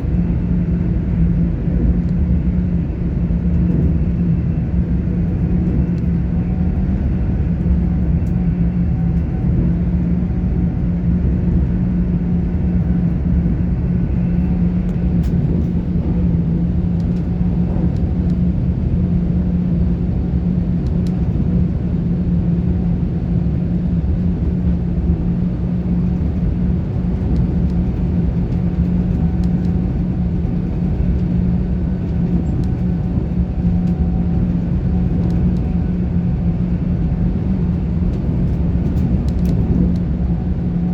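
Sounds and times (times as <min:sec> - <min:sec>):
steady low hum: 0:00.0 - 0:40.9
train wheels rumbling on rails: 0:00.0 - 0:40.9.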